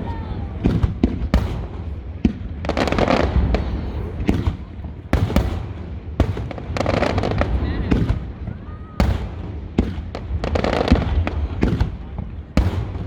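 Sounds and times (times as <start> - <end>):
firework crackling: 0.0 - 13.0.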